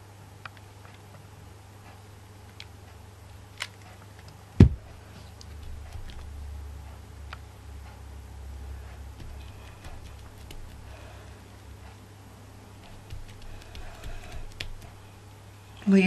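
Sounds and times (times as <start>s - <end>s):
heavy thump: 4.6s - 4.9s.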